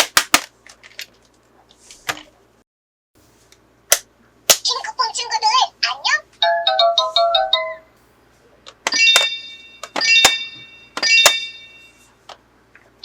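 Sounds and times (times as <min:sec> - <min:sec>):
bright ringing chimes: 0:09.0 - 0:12.2.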